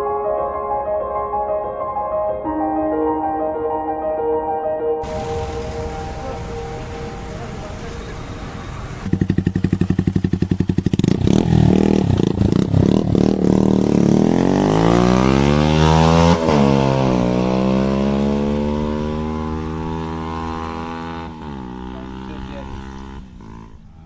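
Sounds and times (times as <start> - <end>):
motorcycle engine revving: 5.0 - 24.0.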